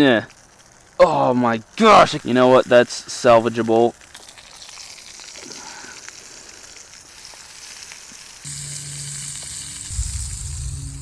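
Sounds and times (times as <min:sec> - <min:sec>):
fire crackles: 0:00.0 - 0:11.0
food sizzling over campfire: 0:00.0 - 0:11.0.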